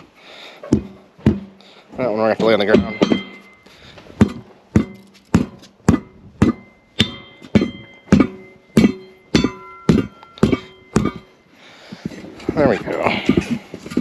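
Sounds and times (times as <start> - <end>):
hammer striking tire with metallic ring: 2.4 - 11.4.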